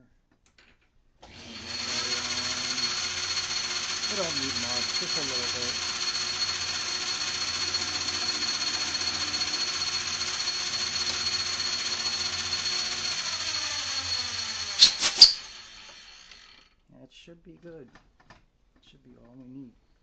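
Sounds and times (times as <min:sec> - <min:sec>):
electric drill whining: 0:01.2 - 0:16.8
sharp clicks of drill: 0:01.2 - 0:16.8.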